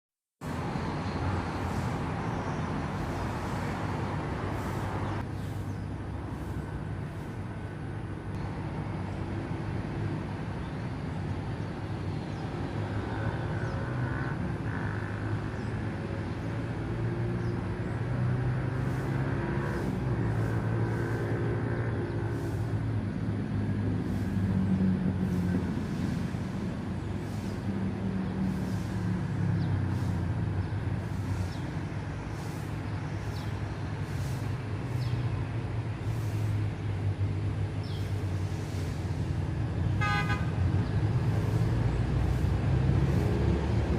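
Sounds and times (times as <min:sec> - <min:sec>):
vehicle engines running: 0:00.4 - 0:43.9.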